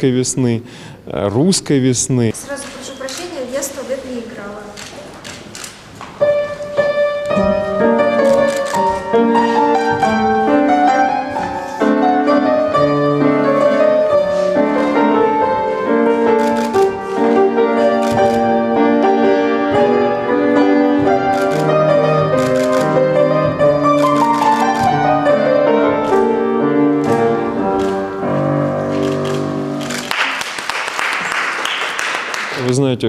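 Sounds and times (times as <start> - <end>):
piano playing chords and melody: 6.2 - 30.1.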